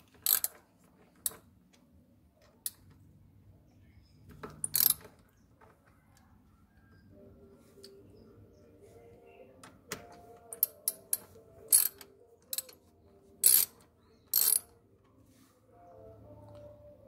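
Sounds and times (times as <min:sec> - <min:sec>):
wrench clicking: 0:00.0 - 0:01.4, 0:04.5 - 0:05.2, 0:10.5 - 0:14.8.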